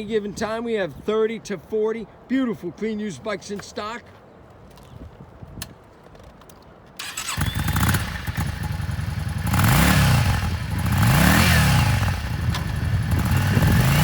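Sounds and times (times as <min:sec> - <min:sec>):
motorcycle engine starting and revving: 0:07.0 - 0:14.0.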